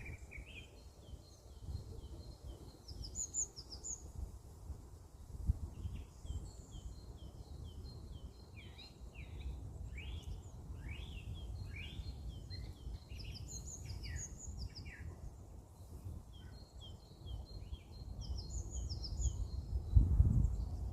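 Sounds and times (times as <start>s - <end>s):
songbirds chirping: 0.0s - 20.9s.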